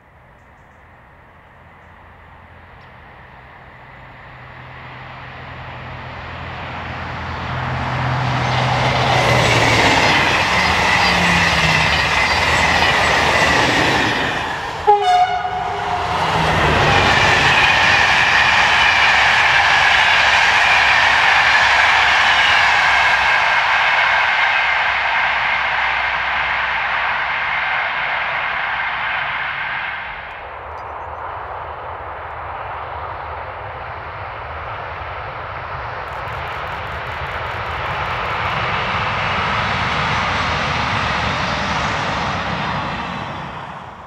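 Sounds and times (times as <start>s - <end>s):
train passing at speed: 0.0s - 44.0s
train horn blast: 14.8s - 16.9s.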